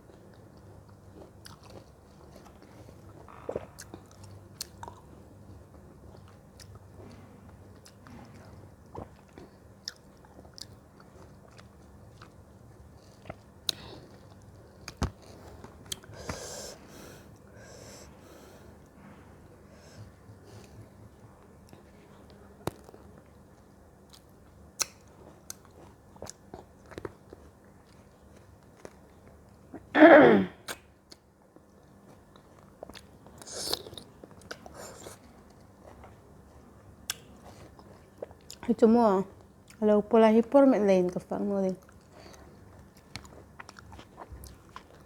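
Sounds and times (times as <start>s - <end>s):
chewing fruit: 0.0s - 16.6s, 20.1s - 29.9s, 30.7s - 40.0s, 41.1s - 45.0s
soft breaths through nose: 16.1s - 20.8s.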